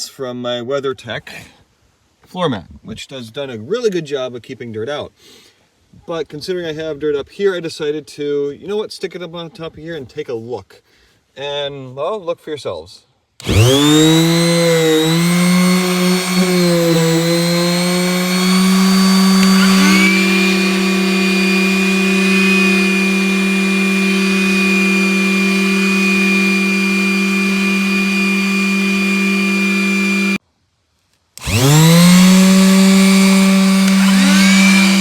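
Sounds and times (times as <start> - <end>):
orbital sander running: 13.4 - 30.4, 31.4 - 35.0
vacuum cleaner running: 13.4 - 30.4, 31.4 - 35.0.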